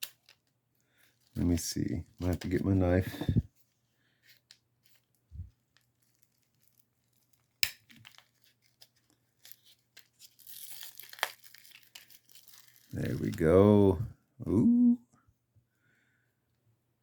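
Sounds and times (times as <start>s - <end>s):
packaging tearing and crinkling: 5.7s - 13.5s.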